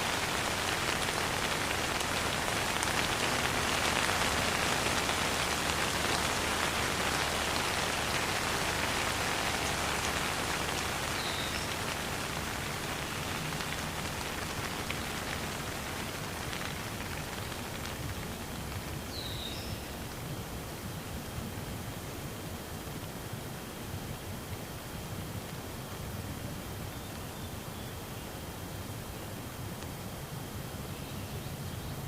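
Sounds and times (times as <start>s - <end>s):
steady rain patter: 0.0s - 32.0s.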